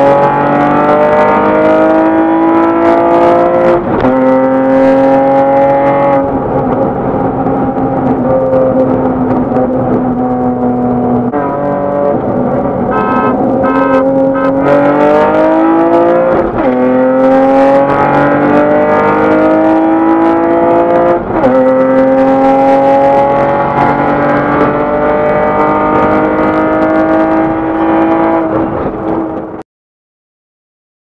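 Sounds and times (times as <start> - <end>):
car engine accelerating through gears: 0.0 - 29.6.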